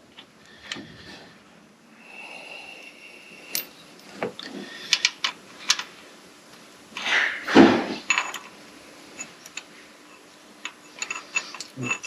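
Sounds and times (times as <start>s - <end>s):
hand tools clicking and knocking: 10.6s - 12.0s.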